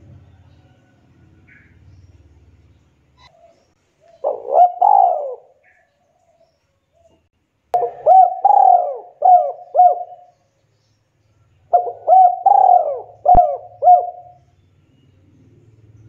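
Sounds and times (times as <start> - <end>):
dove cooing: 3.2 - 5.9, 7.8 - 10.4, 11.7 - 14.4.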